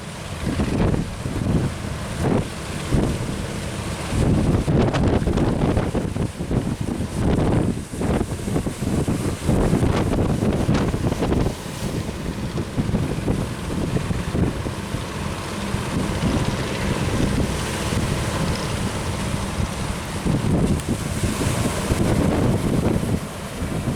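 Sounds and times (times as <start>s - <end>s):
waves and surf: 0.0s - 23.9s
wind buffeting microphone: 0.0s - 23.9s.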